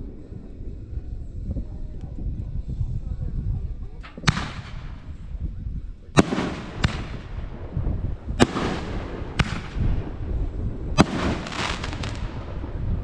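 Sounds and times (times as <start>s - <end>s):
fireworks bangs with echo: 4.0s - 5.2s, 6.2s - 13.0s.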